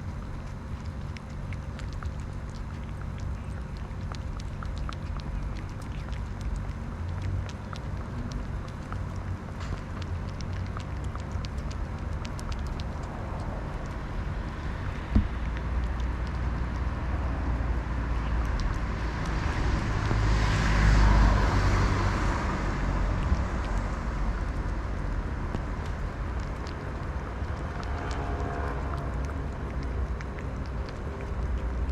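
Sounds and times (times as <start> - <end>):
road traffic rumble: 0.0 - 31.9
vehicle passing: 11.1 - 31.9
single thump: 15.1 - 15.3.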